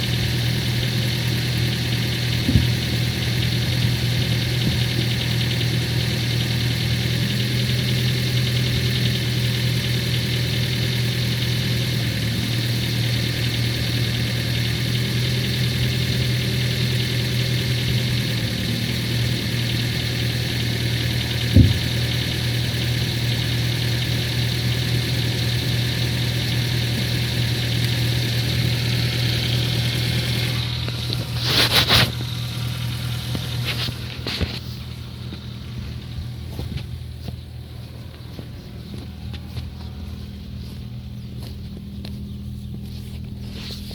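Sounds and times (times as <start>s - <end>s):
car engine idling with tapping knock: 0.0s - 43.9s
brief thump: 2.4s - 2.8s, 21.5s - 22.0s.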